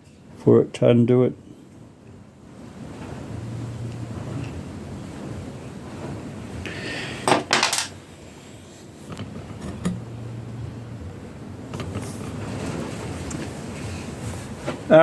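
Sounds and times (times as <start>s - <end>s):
metal tools clattering: 7.3s - 8.0s.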